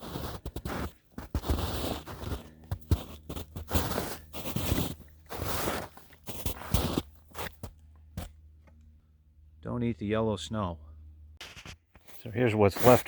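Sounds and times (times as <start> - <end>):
footsteps crunching through snow: 0.0 - 8.3, 11.4 - 13.0.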